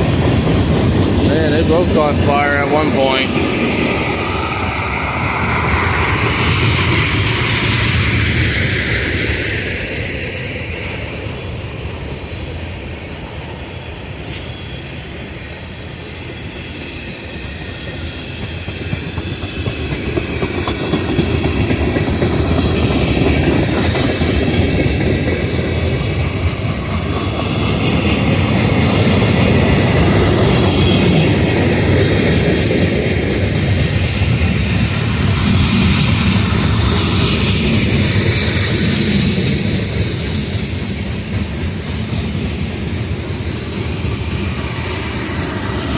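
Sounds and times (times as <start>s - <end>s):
train wheels clicking over rail joints: 16.5s - 45.9s.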